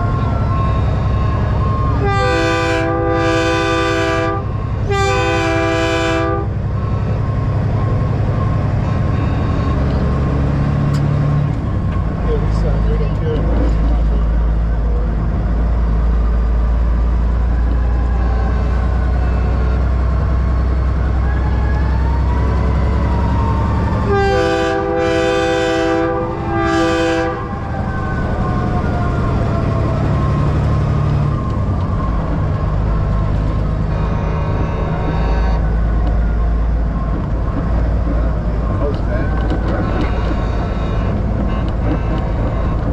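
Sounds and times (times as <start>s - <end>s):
diesel truck engine running: 0.0s - 2.5s, 3.3s - 42.9s
multi-chime truck air horn blasts: 2.0s - 6.6s, 24.1s - 27.4s.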